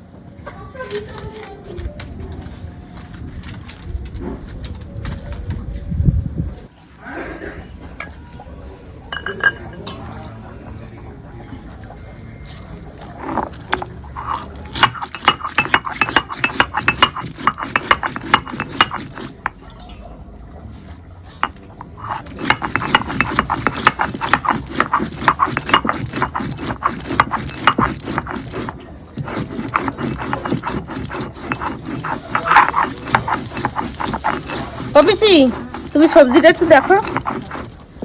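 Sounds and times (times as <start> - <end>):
metal spoon stirring in pot: 13.1 - 19.8, 21.4 - 38.0.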